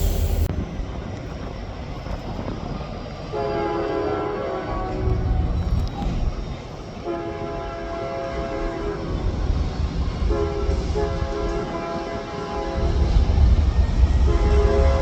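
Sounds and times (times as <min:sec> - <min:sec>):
moving train rumble: 0:00.0 - 0:15.0
locomotive air horn blasts: 0:03.3 - 0:05.0, 0:07.0 - 0:09.1, 0:10.3 - 0:13.2, 0:14.3 - 0:15.0.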